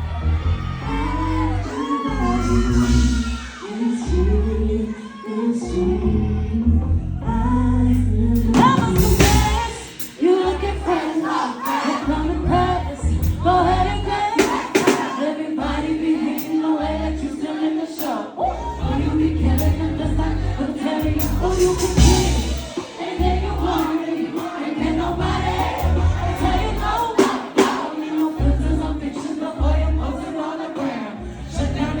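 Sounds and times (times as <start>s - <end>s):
heavy bass pulses: 0.0s - 4.9s, 5.7s - 11.1s, 12.0s - 14.8s, 18.5s - 27.4s, 28.4s - 30.4s, 31.2s - 32.0s
amplified singing: 0.0s - 32.0s
crowd noise: 0.0s - 32.0s.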